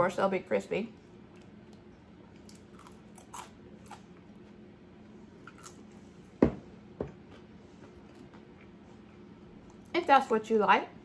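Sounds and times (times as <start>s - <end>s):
chewing crisp fries: 0.9s - 4.7s, 5.3s - 6.2s.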